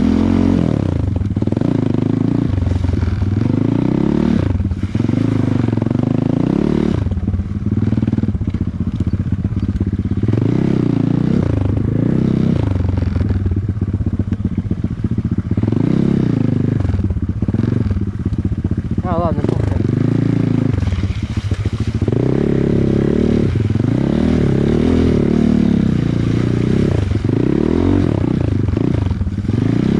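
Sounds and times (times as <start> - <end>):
dirt bike engine revving: 0.0 - 29.9.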